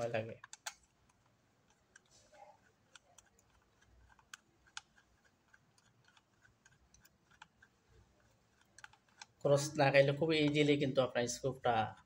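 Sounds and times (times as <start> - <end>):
sharp clicks: 0.0 - 2.1, 8.5 - 10.8
screwdriver clicks and ticks: 0.0 - 7.8, 8.5 - 9.4.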